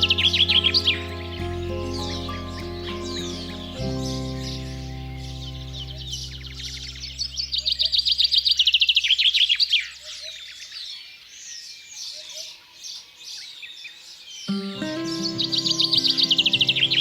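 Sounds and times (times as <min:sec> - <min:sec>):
soft background music: 0:00.0 - 0:07.4, 0:14.5 - 0:17.0
bird chirps: 0:00.0 - 0:17.0.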